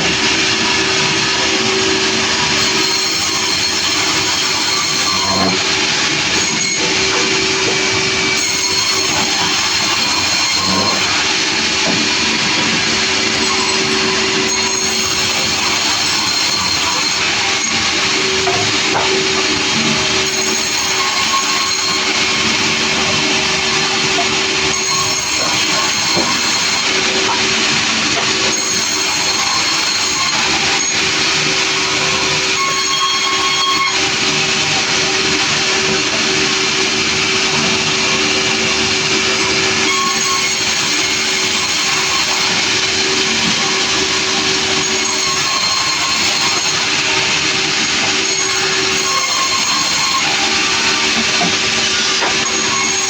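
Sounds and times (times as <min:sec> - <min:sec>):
sawmill saw cutting log: 0:00.0 - 0:53.0.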